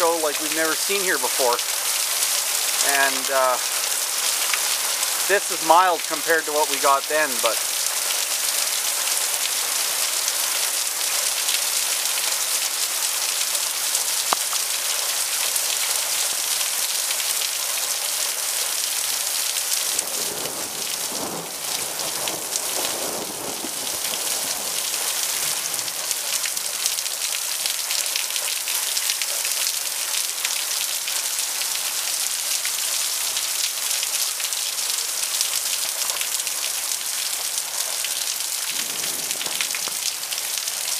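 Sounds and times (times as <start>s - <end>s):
heavy rain hiss: 0.0s - 40.9s
low rumble of thunder: 20.0s - 24.8s, 38.7s - 40.6s.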